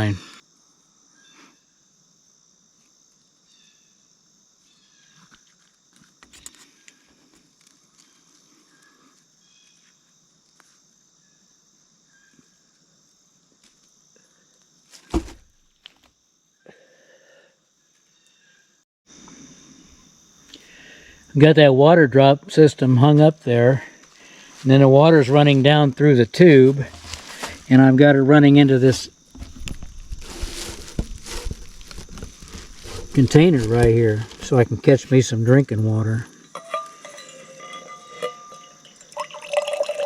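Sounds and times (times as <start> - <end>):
insect chorus: 0.0 - 40.0
camp gear clicks and knocks: 5.3 - 6.7, 15.0 - 16.1, 26.8 - 27.7, 29.3 - 34.7.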